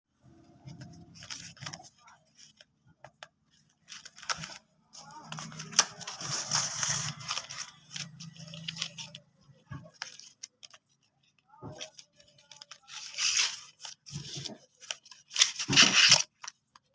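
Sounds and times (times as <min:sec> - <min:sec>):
packaging rustling and tearing: 0:00.5 - 0:02.8, 0:03.6 - 0:16.9.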